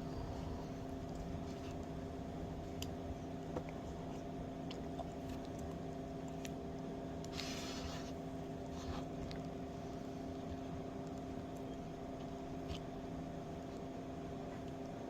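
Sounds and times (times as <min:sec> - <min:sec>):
mechanical hum: 0:00.0 - 0:15.0
hissing rustle: 0:07.3 - 0:08.2.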